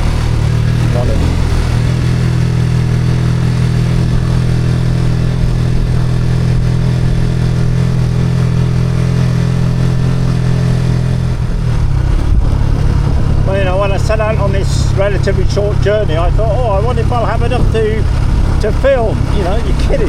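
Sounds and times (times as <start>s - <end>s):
motorcycle engine cruising: 0.0s - 20.0s
road noise: 0.0s - 20.0s
wind noise: 9.7s - 14.7s.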